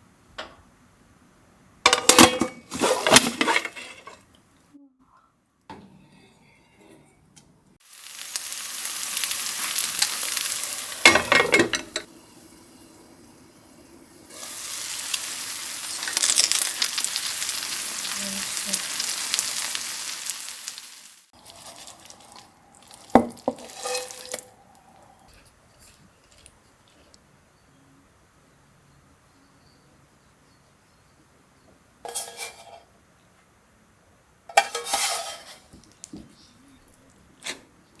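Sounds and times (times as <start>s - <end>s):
cookware clattering: 1.8s - 4.4s, 10.8s - 12.2s, 21.5s - 24.6s, 32.1s - 32.9s, 34.5s - 35.8s
food sizzling in a frying pan: 7.8s - 24.6s, 32.1s - 32.9s, 34.5s - 35.9s.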